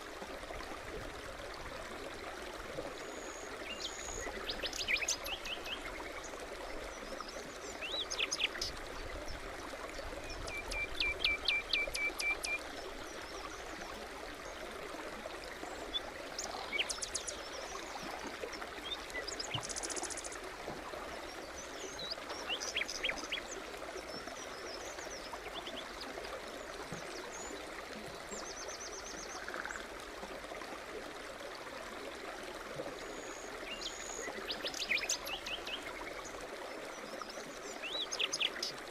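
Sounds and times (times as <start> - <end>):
forest stream running: 0.0 - 38.9
songbirds calling: 21.3 - 26.1, 37.0 - 38.8.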